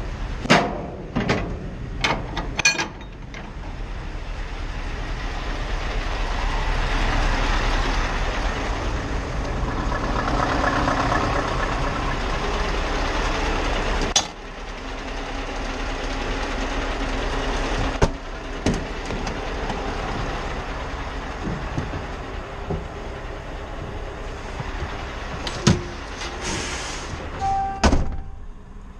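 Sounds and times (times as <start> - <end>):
truck engine running: 0.0 - 28.9.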